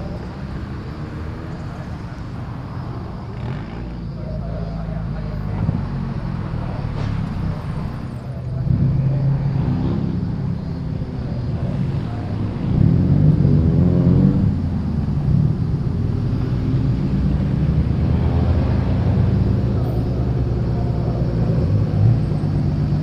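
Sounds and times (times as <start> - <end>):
car engines revving and pulling away: 0.0 - 23.0.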